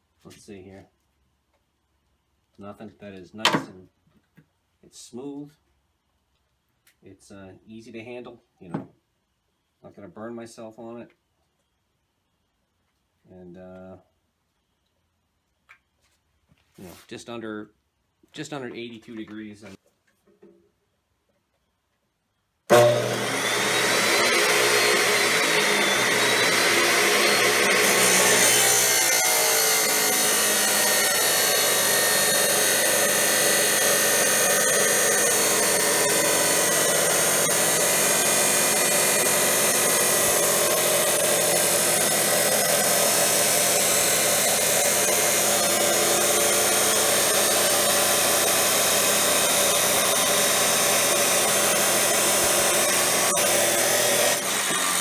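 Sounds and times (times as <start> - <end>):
chop saw grinding steel: 22.7 - 55.0.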